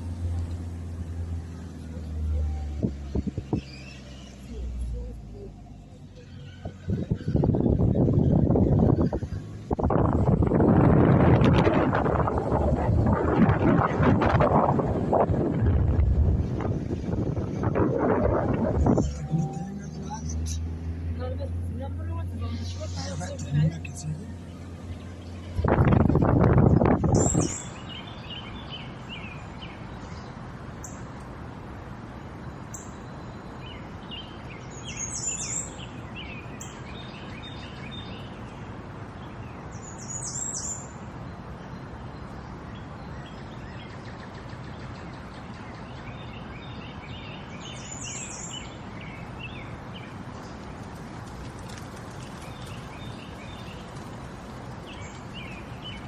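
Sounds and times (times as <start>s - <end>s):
songbirds chirping: 18.7s - 56.0s.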